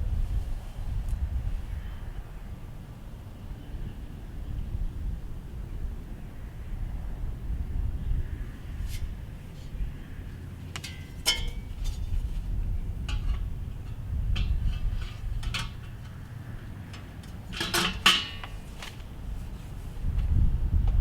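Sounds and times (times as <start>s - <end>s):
low steady rumble: 6.9s - 21.0s
metal grill parts clinking: 10.6s - 19.1s.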